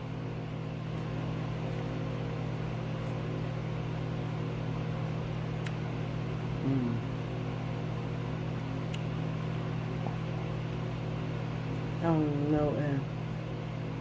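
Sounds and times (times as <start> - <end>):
appliance humming: 0.0 - 14.0
click: 8.9 - 9.1.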